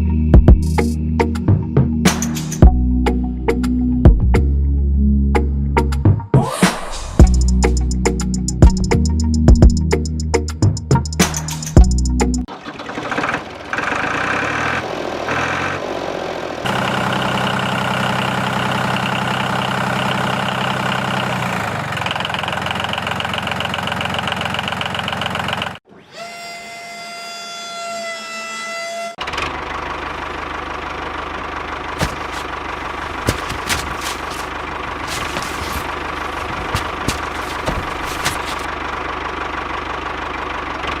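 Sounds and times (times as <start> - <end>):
engine-like running hum: 12.1 - 25.9, 29.2 - 41.0.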